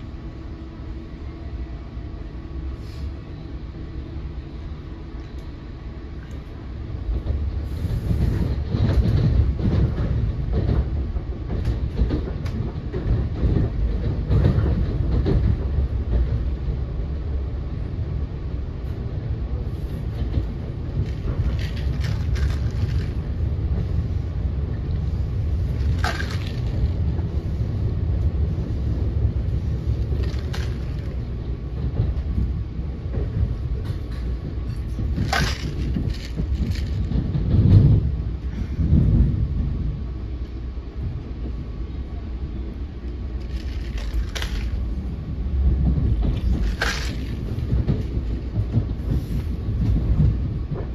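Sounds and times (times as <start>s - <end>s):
train coach rumbling on rails: 0.0s - 50.9s
wheels clicking over track joints: 20.2s - 24.0s, 25.6s - 27.3s, 29.7s - 32.5s, 33.1s - 38.1s, 43.1s - 45.1s, 45.7s - 50.9s.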